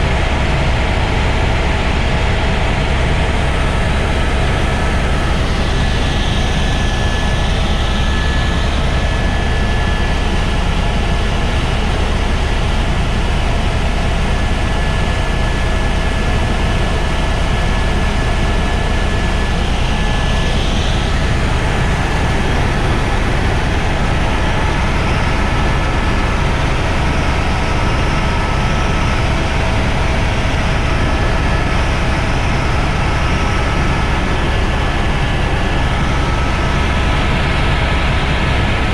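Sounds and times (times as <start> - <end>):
helicopter engine and rotor: 0.0 - 38.9.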